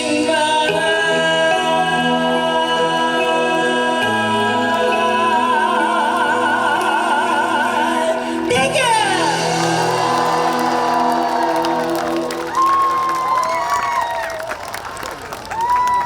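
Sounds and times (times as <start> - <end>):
man singing with vibrato: 0.0 - 12.6.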